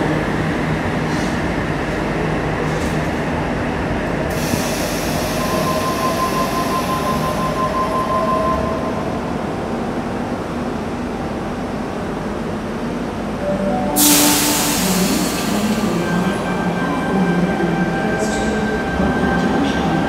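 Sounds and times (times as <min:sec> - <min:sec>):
train wheel squeal: 0:04.4 - 0:09.0.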